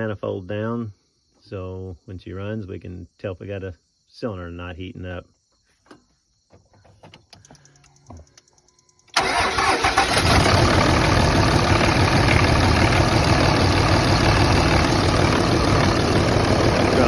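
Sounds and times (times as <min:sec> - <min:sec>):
faint ticks: 0:07.2 - 0:09.1
diesel engine starting and idling roughly: 0:09.1 - 0:17.0.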